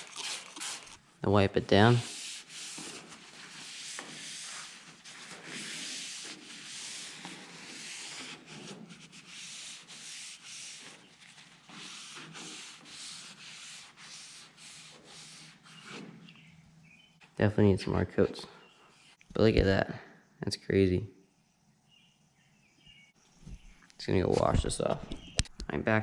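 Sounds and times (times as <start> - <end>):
wipe rubbing plastic lens: 2.0 - 16.5.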